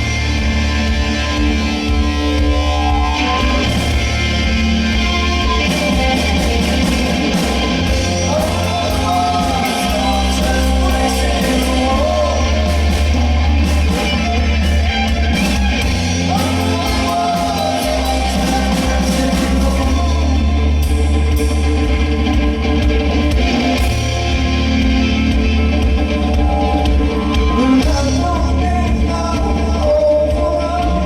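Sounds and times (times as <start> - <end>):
live rock band playing: 0.0 - 31.0
person singing: 7.9 - 14.2, 16.0 - 21.0, 26.3 - 31.0.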